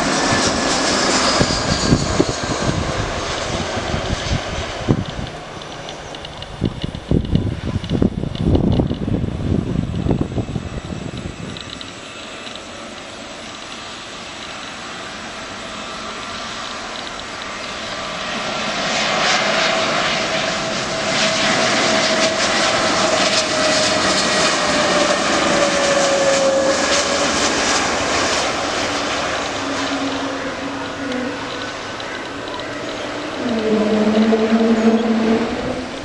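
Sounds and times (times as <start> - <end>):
airliner engines passing: 0.0 - 36.0.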